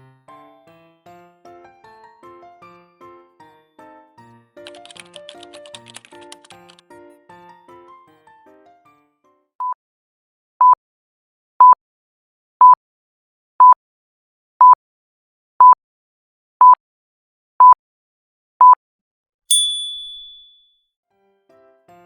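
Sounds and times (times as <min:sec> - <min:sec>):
soft tinkling tune: 0:19.5 - 0:20.7.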